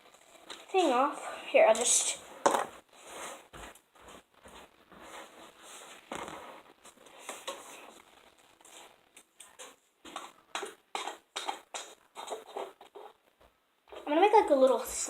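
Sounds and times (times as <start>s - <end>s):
plastic bottle scraping and rustling: 1.7s - 13.2s.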